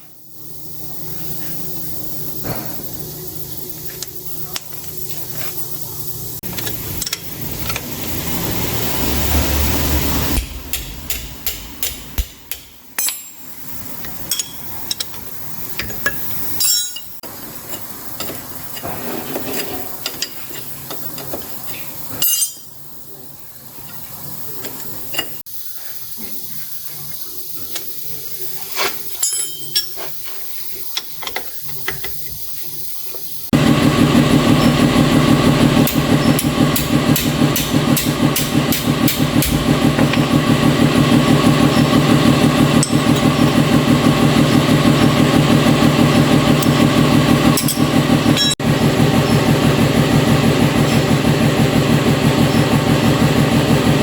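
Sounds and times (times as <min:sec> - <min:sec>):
loud engine running: 0:00.4 - 0:12.4, 0:33.5 - 0:54.0
metal tools clinking: 0:13.0 - 0:22.8, 0:28.7 - 0:32.2.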